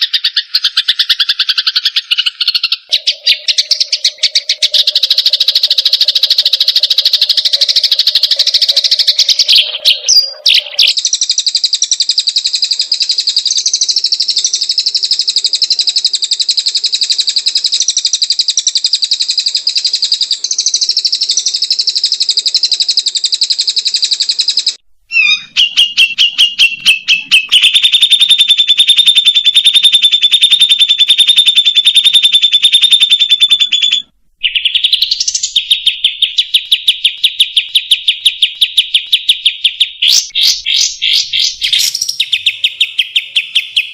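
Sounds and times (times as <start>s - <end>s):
shama singing fast trills: 2.1s - 11.0s, 25.1s - 38.6s.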